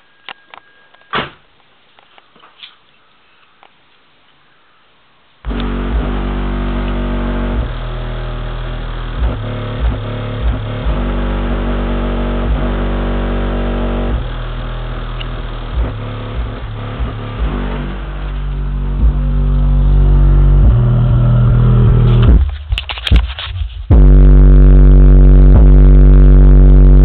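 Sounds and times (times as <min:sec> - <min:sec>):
subwoofer bass thumping: 0:05.5 - 0:27.0.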